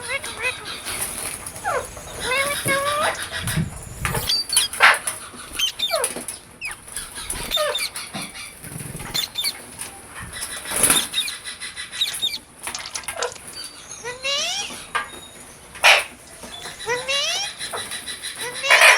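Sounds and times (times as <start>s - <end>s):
parrots chirping and squawking: 0.0s - 18.9s
rustling: 12.0s - 13.8s.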